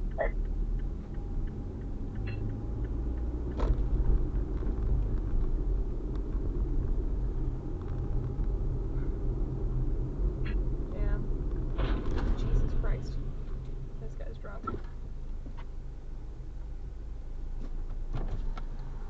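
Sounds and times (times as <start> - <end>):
car driving rumble: 0.0 - 19.0.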